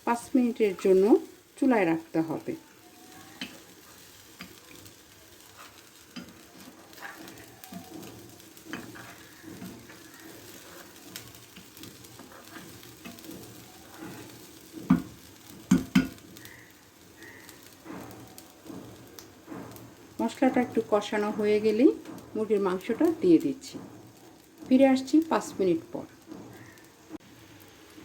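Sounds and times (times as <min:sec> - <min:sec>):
soft sizzle: 0:00.0 - 0:28.0
spatula scraping a pan: 0:02.0 - 0:22.4.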